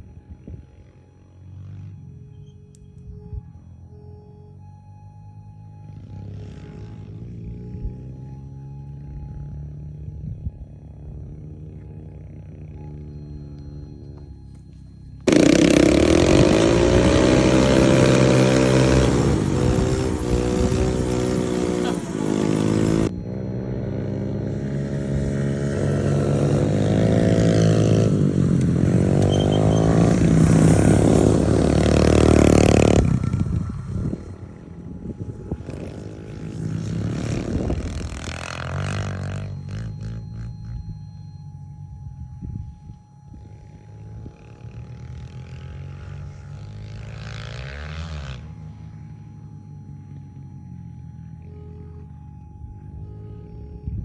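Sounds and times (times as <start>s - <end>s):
off-road vehicle engine revving: 15.3s - 41.1s, 44.2s - 52.4s.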